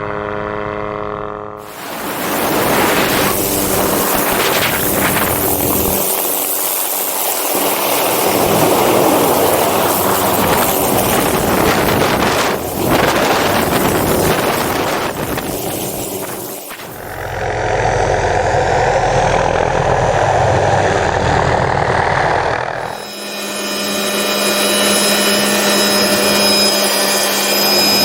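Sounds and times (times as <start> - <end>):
helicopter turbine and rotor: 0.0 - 28.0
wind buffeting microphone: 1.7 - 6.1, 7.6 - 22.8.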